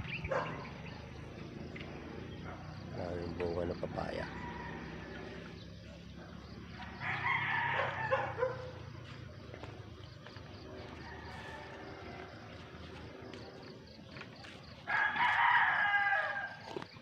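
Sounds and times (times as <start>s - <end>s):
rooster crowing: 4.1s - 5.6s, 6.8s - 8.7s, 10.9s - 12.8s, 14.9s - 16.7s.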